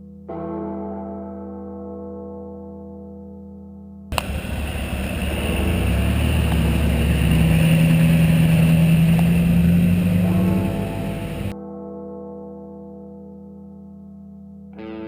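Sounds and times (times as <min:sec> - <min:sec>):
off-road vehicle engine under load: 0:04.1 - 0:11.5
steady rushing noise: 0:04.2 - 0:11.5.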